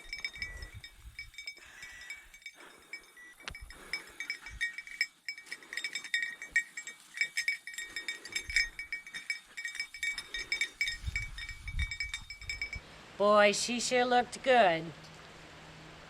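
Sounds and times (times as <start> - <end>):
small bell jingling: 0.0 - 12.8.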